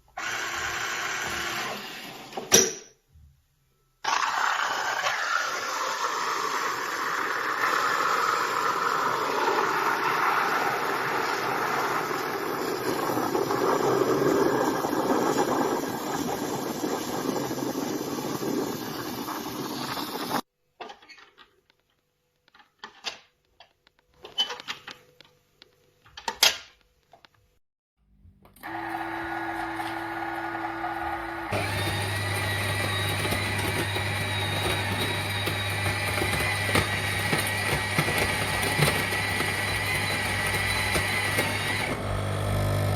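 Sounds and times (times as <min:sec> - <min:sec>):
coffee machine grinding beans: 0:00.2 - 0:02.4, 0:04.0 - 0:20.4, 0:28.6 - 0:42.9
pump hum: 0:28.6 - 0:42.9.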